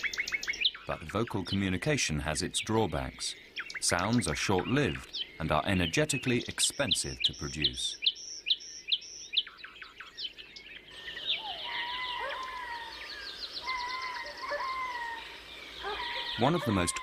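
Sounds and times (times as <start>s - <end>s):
birds chirping: 0.0s - 17.0s
high bird trill: 0.0s - 17.0s
wavering whistled bird notes: 6.2s - 17.0s.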